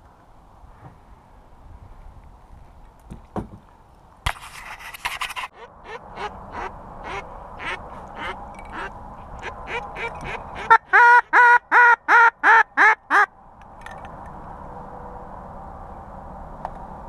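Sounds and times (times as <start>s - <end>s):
duck call quacking: 5.6s - 13.3s.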